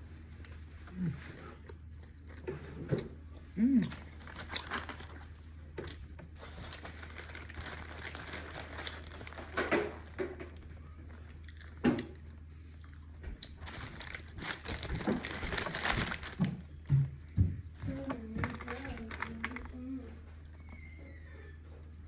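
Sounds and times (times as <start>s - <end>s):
plastic packaging crinkling: 3.9s - 10.2s, 13.5s - 16.6s, 18.4s - 19.8s.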